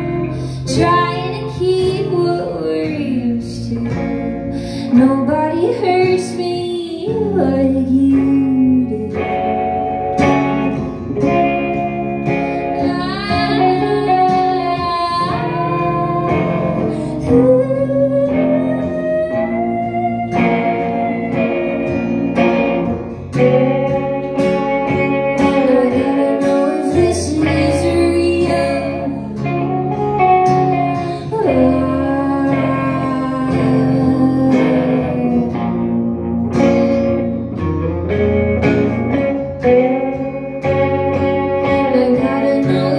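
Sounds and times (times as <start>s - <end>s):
live band with guitar: 0.0s - 42.9s.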